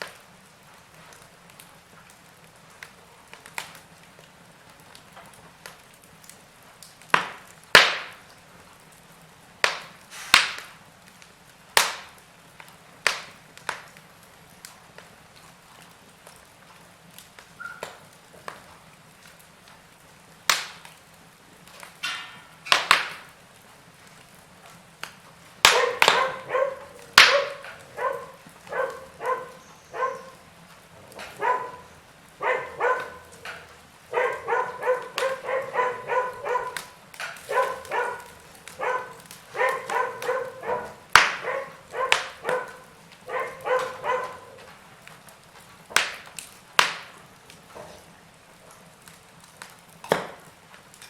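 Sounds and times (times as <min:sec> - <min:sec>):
log fire crackling: 0:00.0 - 0:51.0
short pitched yelping calls: 0:17.6 - 0:17.9, 0:25.7 - 0:30.4, 0:34.2 - 0:36.9.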